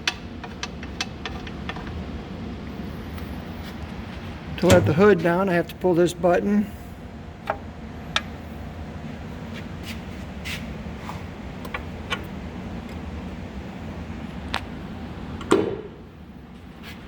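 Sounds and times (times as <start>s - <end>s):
metal hood clunk with ring: 4.6s - 5.4s.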